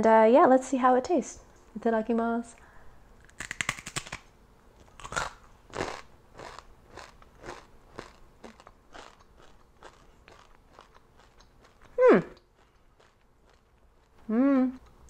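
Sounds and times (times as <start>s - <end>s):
hard shell crunching while chewing: 3.2s - 15.0s.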